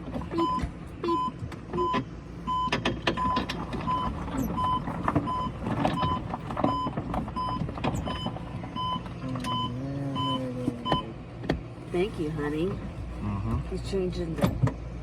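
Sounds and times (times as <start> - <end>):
reverse warning beeper: 0.4 - 11.1.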